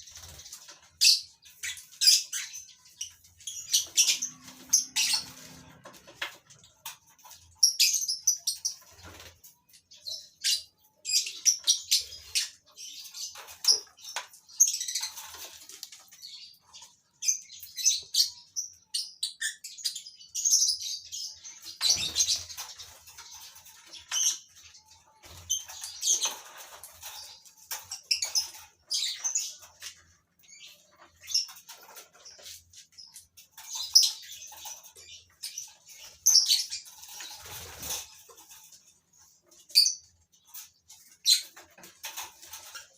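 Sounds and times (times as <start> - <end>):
lovebirds chirping: 0.1 - 42.9.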